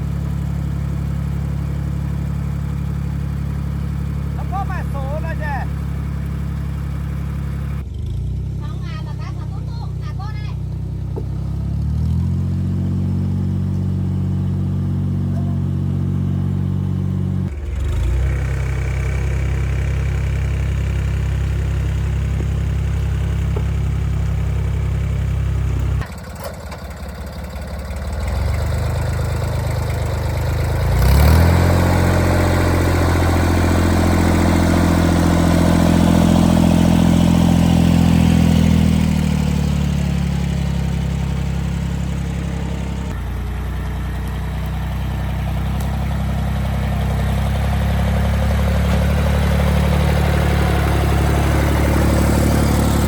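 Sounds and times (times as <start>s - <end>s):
engine running: 0.0s - 53.0s.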